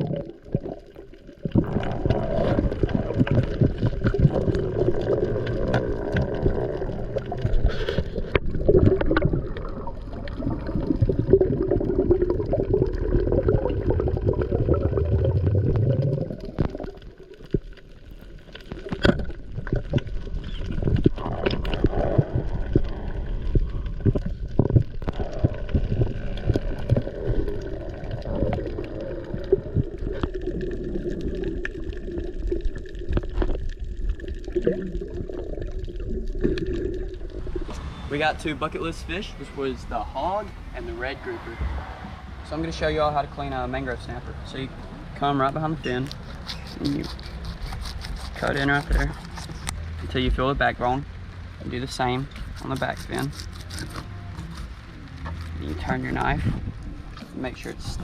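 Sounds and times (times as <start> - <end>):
muffled underwater gurgling: 0.0 - 17.7, 18.7 - 38.2.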